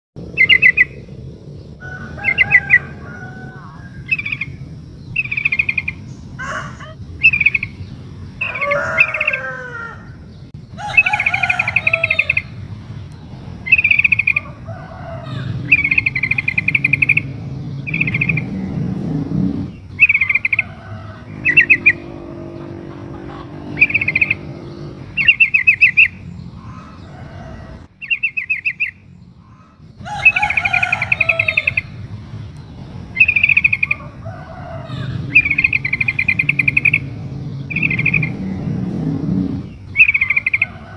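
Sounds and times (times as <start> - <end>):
bird chattering notes: 15.5 - 20.7, 21.3 - 26.2, 35.1 - 40.8.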